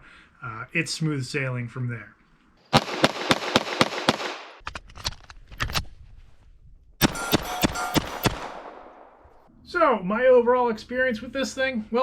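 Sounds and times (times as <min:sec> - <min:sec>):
suppressed pistol shots: 0:02.7 - 0:04.6, 0:07.0 - 0:09.4
ringing tone: 0:07.0 - 0:08.3.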